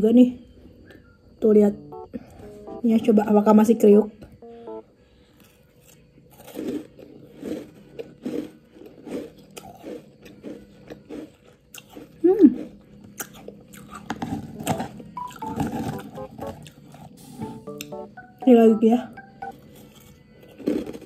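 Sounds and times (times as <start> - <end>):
chewing crunchy cereal: 5.3 - 17.4, 19.6 - 21.0.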